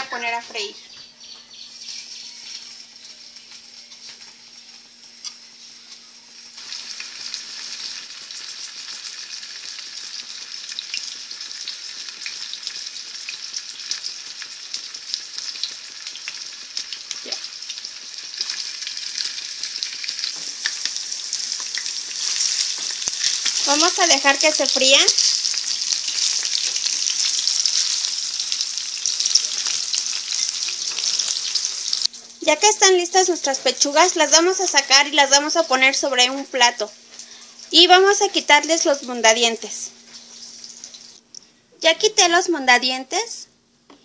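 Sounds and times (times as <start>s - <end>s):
chicken sizzling in hot oil: 1.7s - 41.2s.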